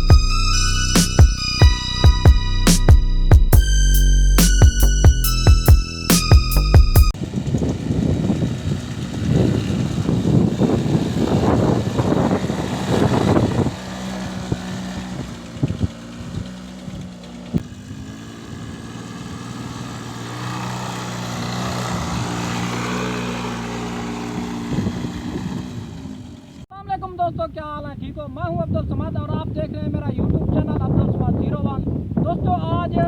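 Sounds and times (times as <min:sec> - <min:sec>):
quad bike engine running: 0:07.2 - 0:26.7.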